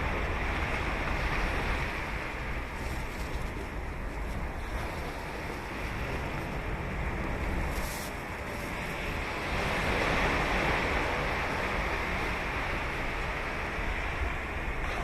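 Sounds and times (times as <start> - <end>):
ocean waves breaking: 0.0 - 15.0.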